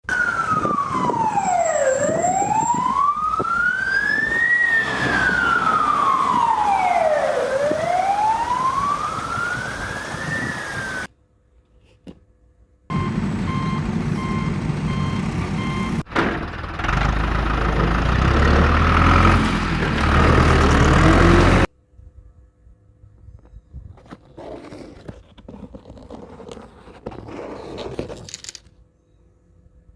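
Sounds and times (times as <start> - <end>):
siren wailing: 0.1 - 11.1, 12.9 - 16.1
engine rumble: 3.4 - 9.1, 12.9 - 21.7.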